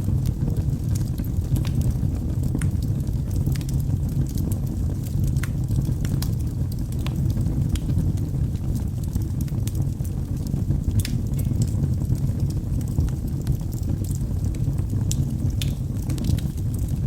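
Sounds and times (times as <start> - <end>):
fire burning: 0.0 - 17.0
fire crackles and pops: 0.0 - 17.0.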